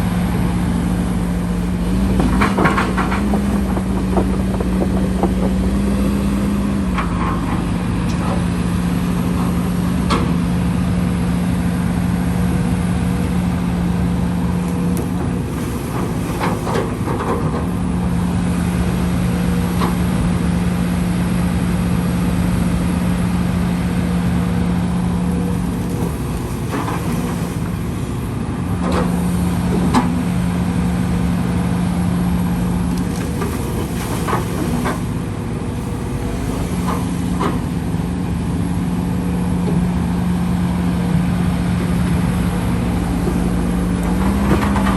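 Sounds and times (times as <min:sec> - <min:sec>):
heavy machinery diesel engine: 0:00.0 - 0:44.9
short knocks and clanks: 0:01.6 - 0:08.5.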